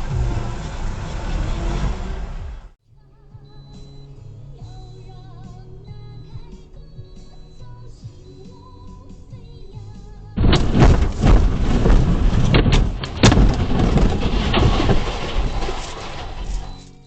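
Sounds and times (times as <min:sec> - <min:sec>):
loud rumbling vehicle noise: 0:00.0 - 0:02.8, 0:04.7 - 0:17.0
knocks and thuds: 0:09.8 - 0:16.8.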